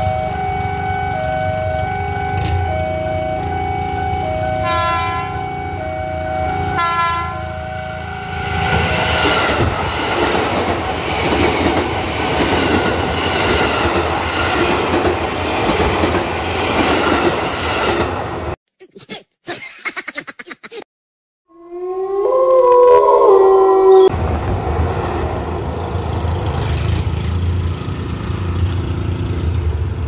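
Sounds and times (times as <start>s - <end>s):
two-tone crossing alarm: 0.0s - 9.5s
train rumbling over rails: 0.0s - 18.6s, 24.1s - 30.0s
train horn blasts: 4.5s - 8.7s.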